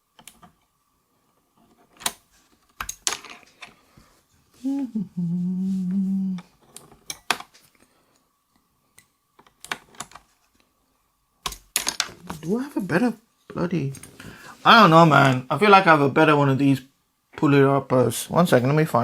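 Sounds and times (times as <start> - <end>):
man humming: 4.6 - 6.5.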